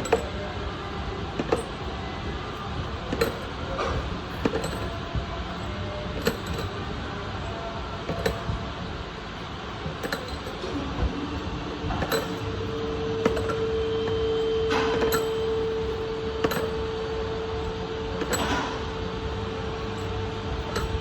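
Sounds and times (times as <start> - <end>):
metal tools clinking: 0.0 - 0.4, 3.1 - 5.0, 6.2 - 6.8, 10.0 - 10.8, 12.0 - 16.8, 18.2 - 18.8, 19.9 - 21.0
steady hum: 0.0 - 21.0
workshop background: 0.0 - 21.0.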